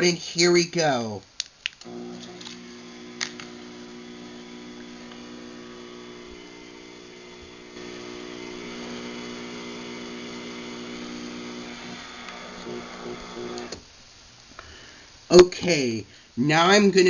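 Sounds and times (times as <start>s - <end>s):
garage door opener motor humming: 1.9s - 13.8s.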